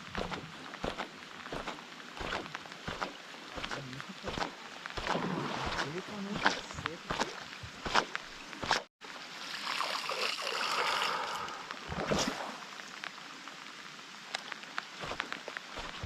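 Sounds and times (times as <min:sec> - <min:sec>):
running splashing water: 0:00.0 - 0:13.1
sharp splash or knock: 0:00.2 - 0:08.9.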